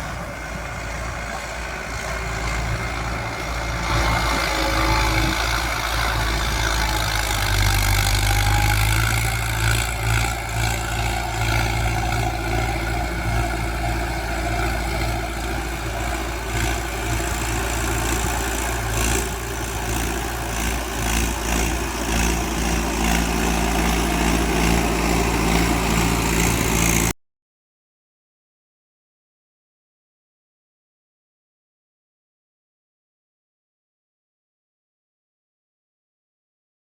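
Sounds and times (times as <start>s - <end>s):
tractor diesel engine running: 0.0s - 27.2s.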